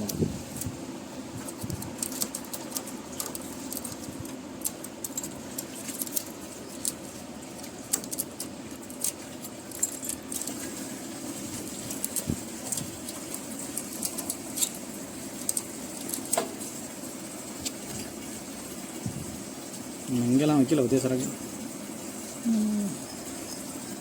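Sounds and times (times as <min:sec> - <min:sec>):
steady low hum: 0:00.0 - 0:24.0
small clicks taps and scrapes: 0:01.4 - 0:10.7, 0:11.8 - 0:14.8.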